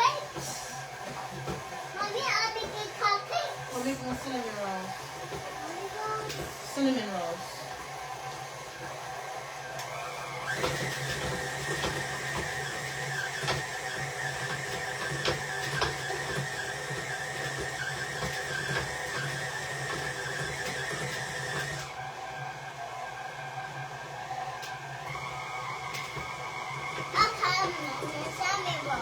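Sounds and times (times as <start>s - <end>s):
stand mixer motor whine: 0.0s - 29.0s.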